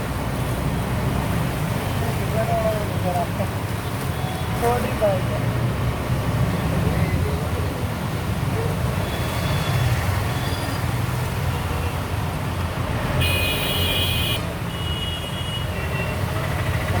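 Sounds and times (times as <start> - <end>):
traffic engine rumble: 0.0 - 17.0
vehicle horn: 13.2 - 15.7.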